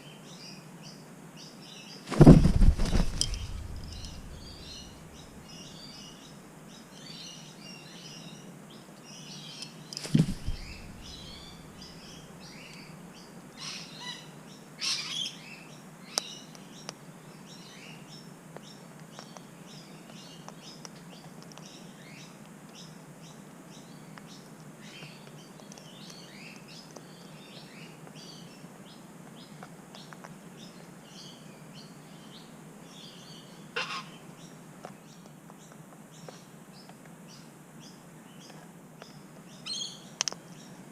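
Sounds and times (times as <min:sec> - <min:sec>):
birds chirping and twittering: 0:00.3 - 0:40.9
loud thump: 0:02.1 - 0:05.1, 0:10.1 - 0:11.6
harsh bird calls: 0:10.0 - 0:12.2, 0:33.8 - 0:34.2.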